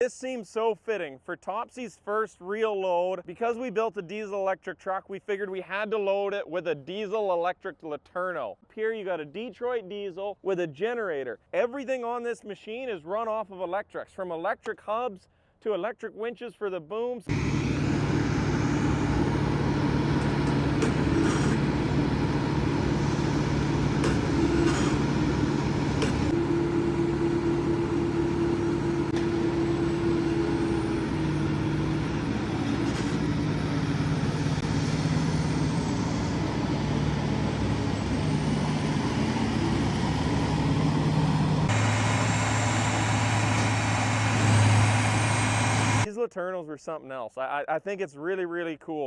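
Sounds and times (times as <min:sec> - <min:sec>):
diesel engine running under load: 0:17.3 - 0:46.1.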